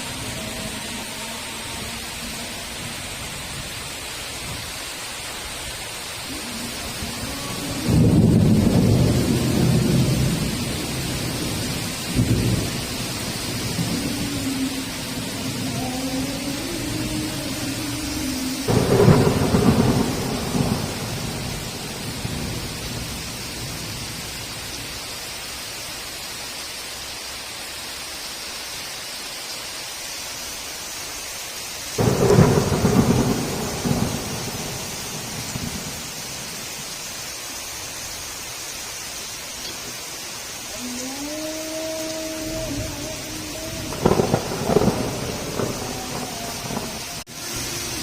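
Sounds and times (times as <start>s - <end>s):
heavy rain falling: 0.0s - 48.0s
thunderclaps: 7.1s - 15.9s, 18.6s - 23.4s, 32.0s - 36.8s, 42.7s - 47.3s.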